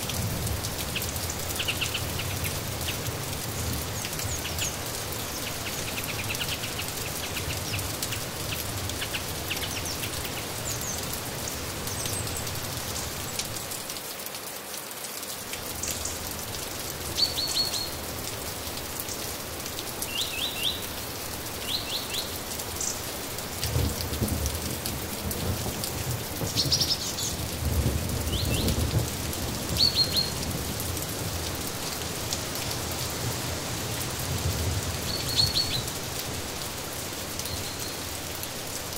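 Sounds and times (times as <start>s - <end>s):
rain falling: 0.0s - 38.9s
songbird chirping: 17.0s - 18.1s, 20.0s - 23.2s, 26.4s - 27.5s, 29.7s - 30.5s.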